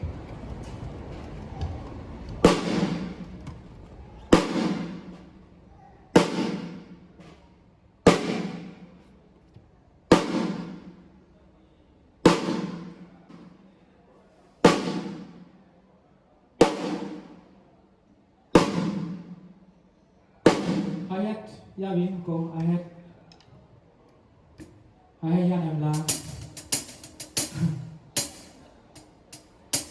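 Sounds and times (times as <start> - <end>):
drum hits with low tone: 26.0 - 28.6, 29.3 - 29.9.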